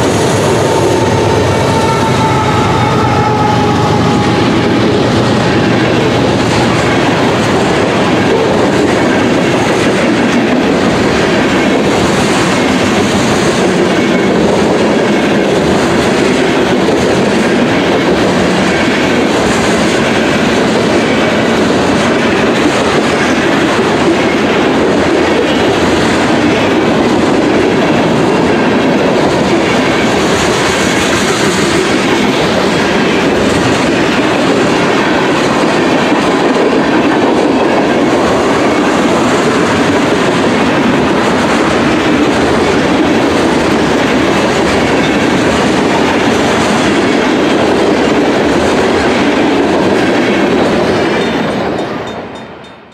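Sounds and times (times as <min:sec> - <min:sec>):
freight train rolling past: 0:00.0 - 0:52.9.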